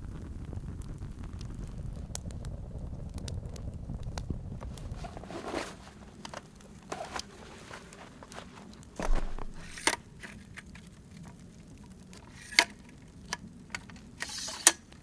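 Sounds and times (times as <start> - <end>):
wind rumble on microphone: 0.0 - 5.0
campfire crackling and popping: 0.0 - 5.3, 5.9 - 15.0
brief scuffs: 9.0 - 9.8.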